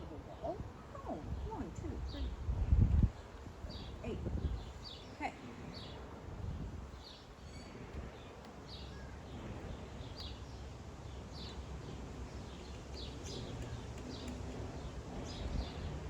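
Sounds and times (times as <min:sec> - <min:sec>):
bird chirping: 0:06.9 - 0:16.0.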